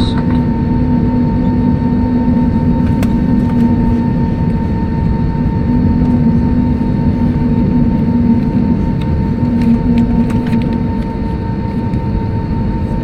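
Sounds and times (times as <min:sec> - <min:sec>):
aircraft cabin rumble: 0:00.0 - 0:13.0
humming tones: 0:00.0 - 0:13.0.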